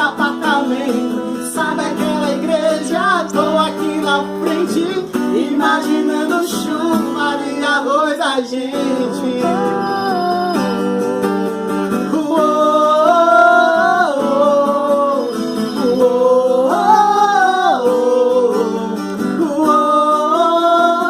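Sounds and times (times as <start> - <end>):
acoustic guitar strumming: 0.0 - 21.0
person singing long notes: 8.4 - 21.0.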